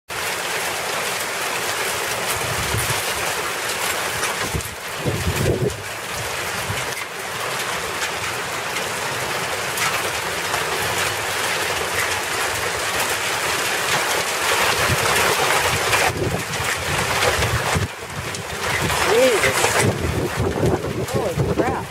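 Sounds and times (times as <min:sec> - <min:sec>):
hail and rain pelting: 0:00.1 - 0:21.9
wind rumbling on microphone: 0:02.3 - 0:03.3, 0:04.0 - 0:07.0, 0:14.6 - 0:21.9.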